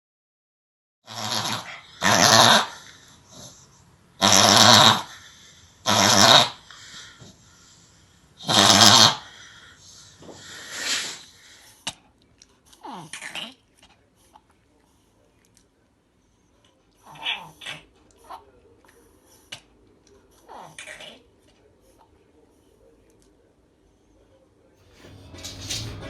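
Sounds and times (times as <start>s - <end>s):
dog reverse sneezing: 8.4s - 11.5s.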